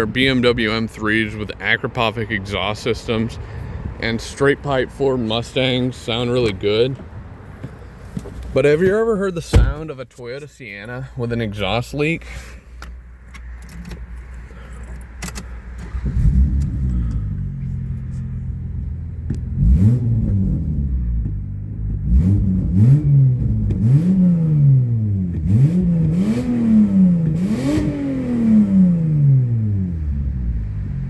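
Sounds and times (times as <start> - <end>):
car engine revving with exhaust leak: 15.2 - 31.0.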